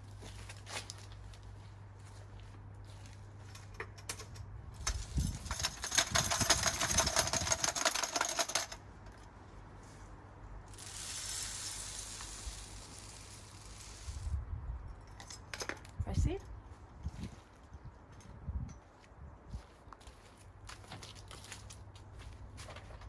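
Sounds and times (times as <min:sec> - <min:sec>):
bird seed pouring: 0:10.7 - 0:14.3.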